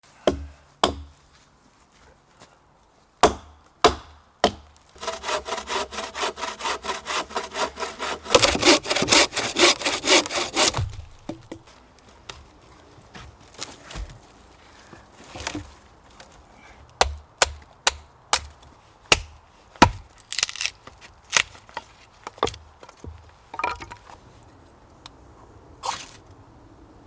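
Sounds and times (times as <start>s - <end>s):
hand saw cutting wood: 4.5s - 11.5s.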